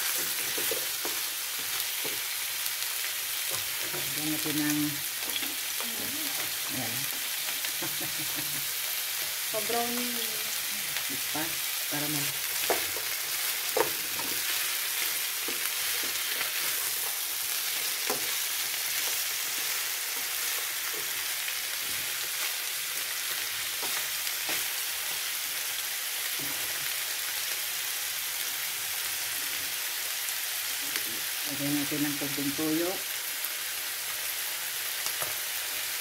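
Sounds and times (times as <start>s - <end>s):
food sizzling in a pan: 0.0s - 36.0s.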